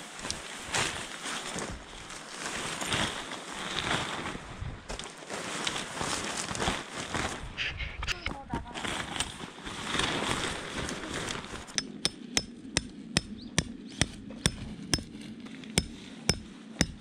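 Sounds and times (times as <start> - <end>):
tent fabric rustling: 0.0 - 7.5, 8.8 - 11.8.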